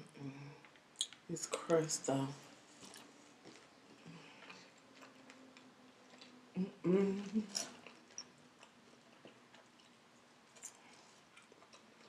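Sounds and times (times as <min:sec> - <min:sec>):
quiet chewing: 0:02.4 - 0:12.0.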